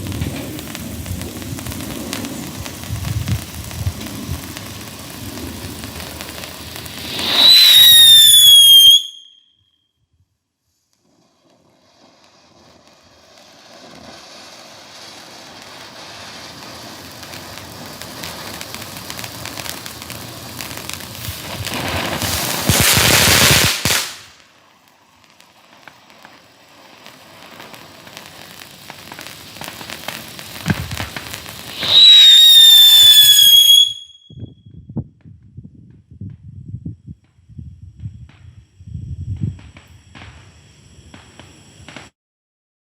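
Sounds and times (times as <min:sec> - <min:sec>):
firework hissing spray: 0:00.0 - 0:09.3, 0:10.6 - 0:34.2, 0:39.6 - 0:42.1
firework whistle: 0:00.0 - 0:10.0, 0:11.0 - 0:34.8.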